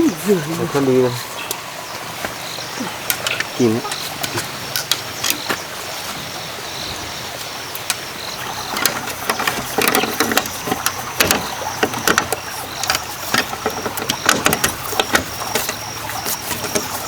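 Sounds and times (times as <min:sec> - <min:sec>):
taps and knocks on bamboo: 0:08.7 - 0:17.0.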